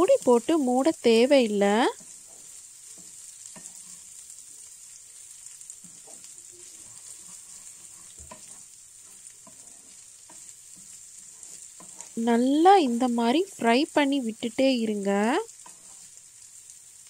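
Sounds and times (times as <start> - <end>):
prawns sizzling in oil: 0.0 - 17.0
spatula tapping and scraping pan: 2.0 - 4.2, 5.4 - 12.2, 15.5 - 16.2.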